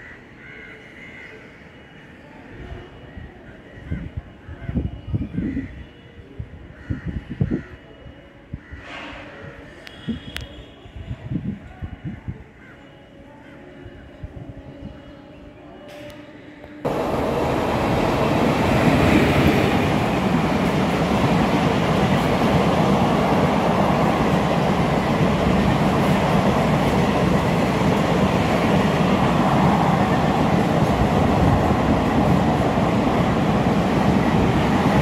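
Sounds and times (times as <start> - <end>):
train wheels rumbling on rails: 16.9 - 35.0.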